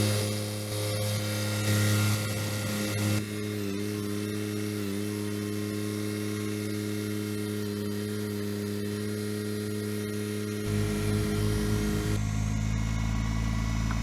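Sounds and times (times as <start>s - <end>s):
tractor diesel engine running: 10.6s - 14.0s.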